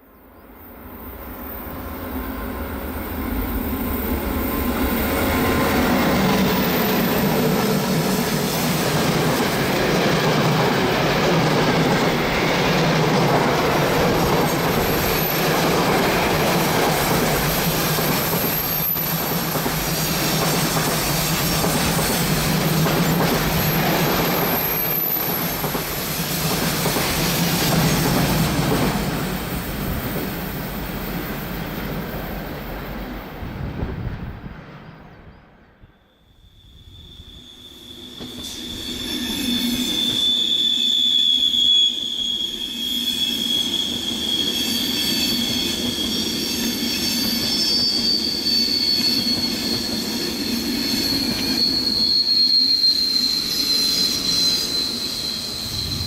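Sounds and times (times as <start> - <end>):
train wheels rumbling on rails: 1.1 - 35.1, 37.7 - 56.0
high wheel squeals: 3.0 - 20.4, 21.0 - 26.5, 36.2 - 56.0.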